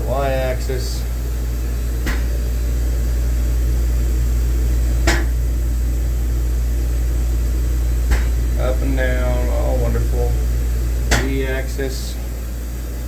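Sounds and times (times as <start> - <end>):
grinder machine humming: 0.0 - 13.0
sharp click: 8.1 - 8.4, 11.1 - 11.4.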